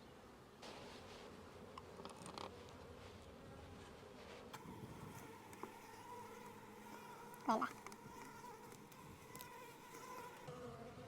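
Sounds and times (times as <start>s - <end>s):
honeybees buzzing: 2.6s - 11.0s.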